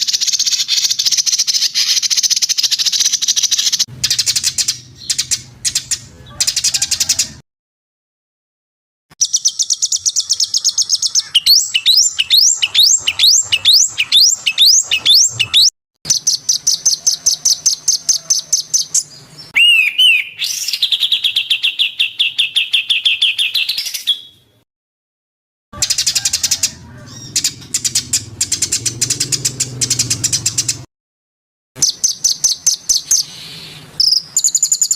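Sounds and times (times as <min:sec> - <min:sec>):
rising whistled bird notes: 0:09.2 - 0:16.8, 0:18.8 - 0:24.4
songbird fast high trills: 0:09.3 - 0:15.7, 0:19.6 - 0:21.2.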